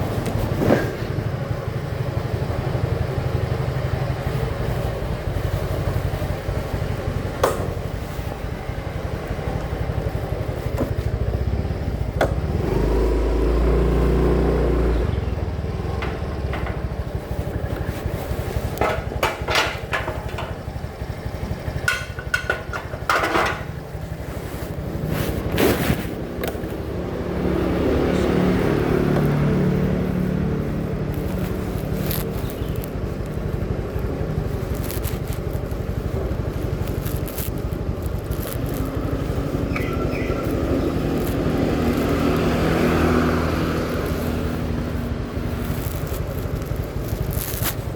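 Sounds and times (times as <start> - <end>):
motorcycle engine running: 0.0 - 47.9
sharp clicks and knocks: 7.4 - 8.1, 12.1 - 12.5, 15.9 - 20.9, 21.5 - 23.9.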